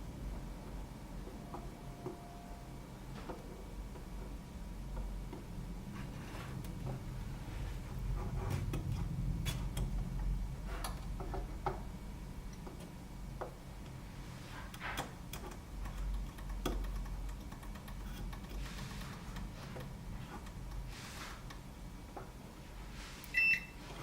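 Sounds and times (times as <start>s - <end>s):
steady low hum: 0.0s - 24.0s
small clicks and taps: 14.7s - 20.9s.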